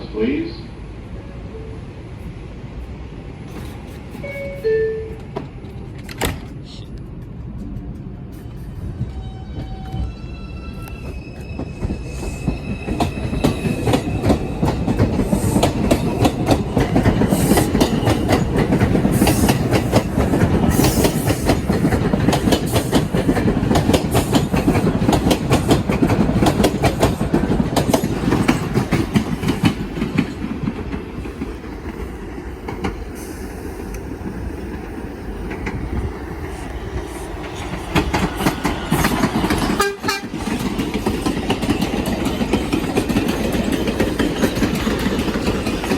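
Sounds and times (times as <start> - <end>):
subway train wheels rumbling: 0.0 - 45.9
wheels clicking over rail joints: 37.4 - 45.9.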